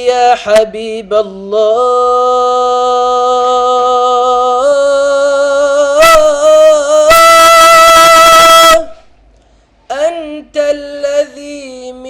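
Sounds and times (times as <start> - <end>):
man singing a held note: 1.8 - 9.1.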